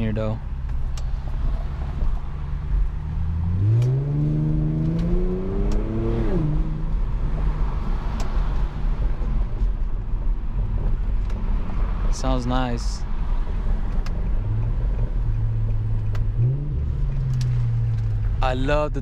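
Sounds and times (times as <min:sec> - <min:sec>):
car engine revving: 0:00.7 - 0:09.6, 0:13.4 - 0:18.6.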